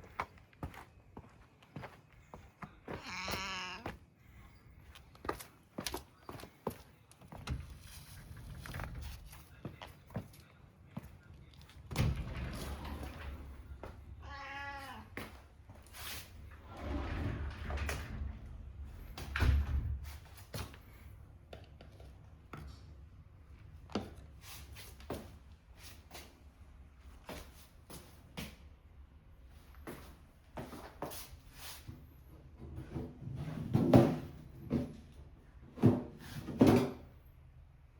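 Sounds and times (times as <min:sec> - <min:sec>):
cat meowing: 0:03.0 - 0:03.9, 0:14.2 - 0:15.2.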